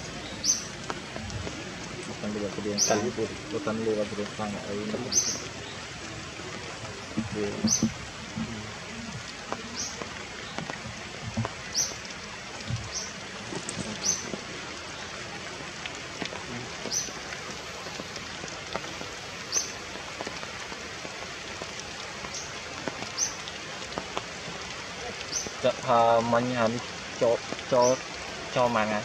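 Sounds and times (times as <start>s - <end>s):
rain-like hiss: 0.0s - 29.0s
faint knocks: 7.2s - 8.6s.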